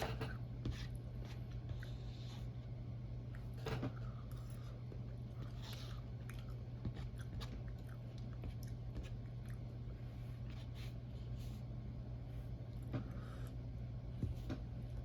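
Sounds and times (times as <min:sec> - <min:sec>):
low electrical hum: 0:00.0 - 0:15.0
close chewing with mouth clicks: 0:05.4 - 0:09.8.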